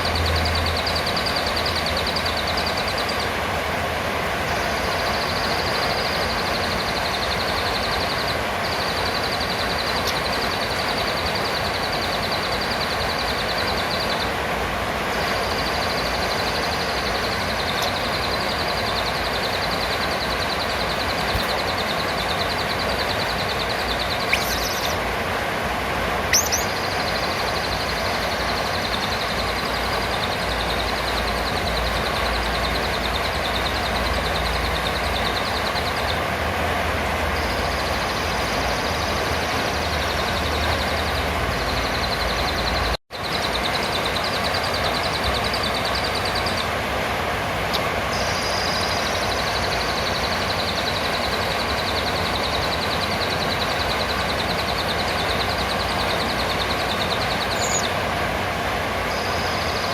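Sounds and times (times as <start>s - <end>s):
sharp high chirps: 0.0s - 3.4s, 4.4s - 14.4s, 15.0s - 25.0s, 26.3s - 36.2s, 47.7s - 58.0s
parrot trilling: 15.9s - 25.0s, 26.3s - 29.7s.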